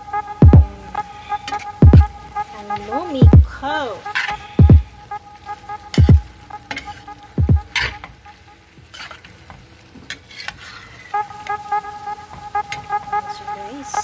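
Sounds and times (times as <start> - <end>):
faint simmer: 0.0 - 14.0
deep thuds: 0.4 - 0.7, 4.6 - 4.9, 6.0 - 6.2, 7.4 - 7.7.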